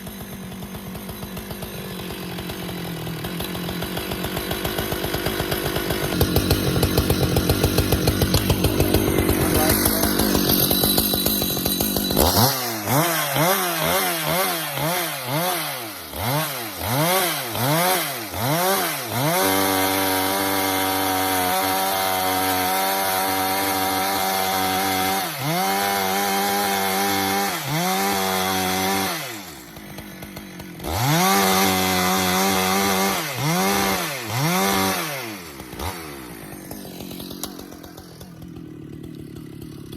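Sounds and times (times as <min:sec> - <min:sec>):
chainsaw cutting and revving: 0:00.0 - 0:39.9.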